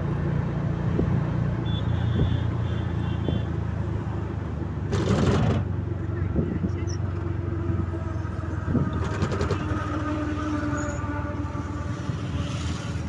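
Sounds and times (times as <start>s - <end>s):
vehicle engine droning: 3.2s - 13.0s.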